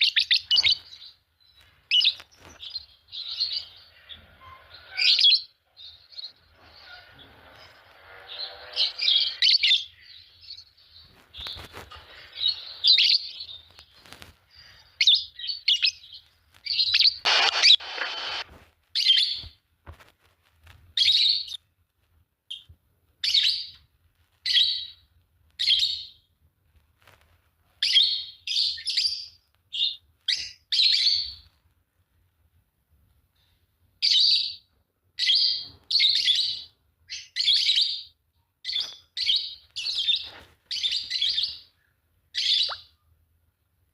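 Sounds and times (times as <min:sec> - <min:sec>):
lovebirds chirping: 0:00.0 - 0:18.4, 0:34.0 - 0:43.0.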